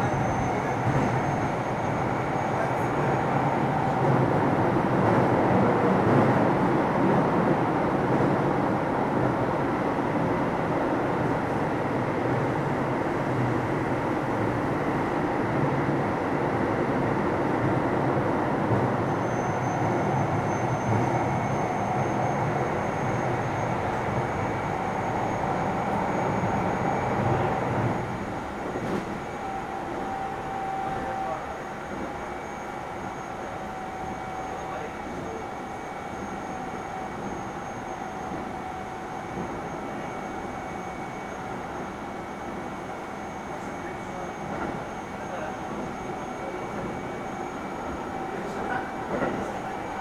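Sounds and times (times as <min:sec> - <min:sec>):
low train rumble: 0:00.0 - 0:50.0
train wheels rolling on rails: 0:25.4 - 0:29.5, 0:45.7 - 0:50.0.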